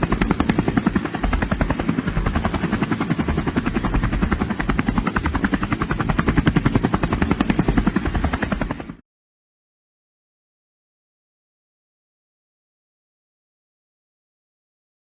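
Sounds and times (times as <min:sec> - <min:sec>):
helicopter rotor chopping: 0:00.0 - 0:09.0.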